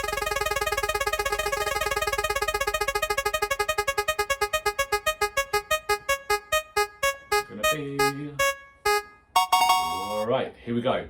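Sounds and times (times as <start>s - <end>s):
spinner wheel ticking: 0.0s - 7.5s.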